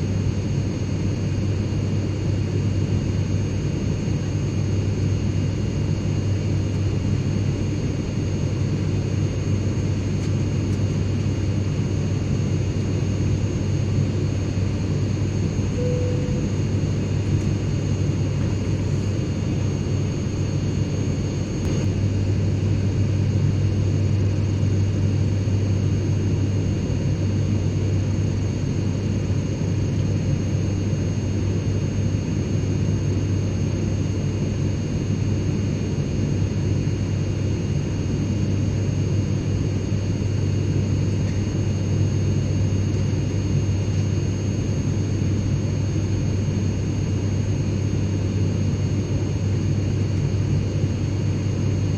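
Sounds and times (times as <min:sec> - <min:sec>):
airplane cabin rumble: 0:04.6 - 0:27.4
faint high whine: 0:13.6 - 0:22.2.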